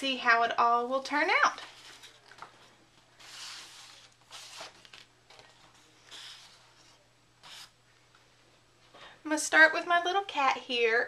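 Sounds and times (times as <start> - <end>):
faint paper rustling: 1.4 - 7.7.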